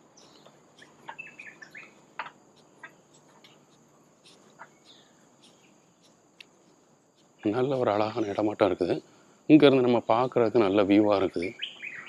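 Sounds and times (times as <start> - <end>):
high insect drone: 0.0 - 12.0
short bird chirps: 0.1 - 6.2, 11.4 - 12.0.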